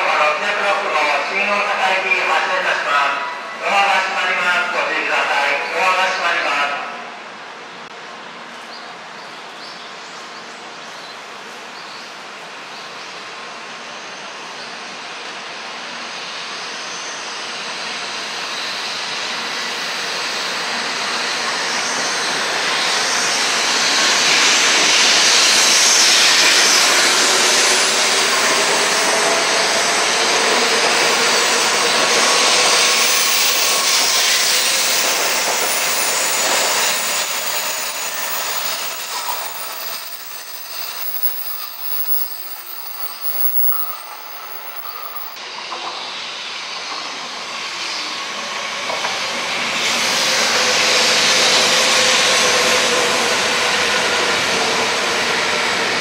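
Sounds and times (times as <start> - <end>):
train rushing past: 12.1 - 56.0
brake whine falling in pitch: 38.0 - 45.4.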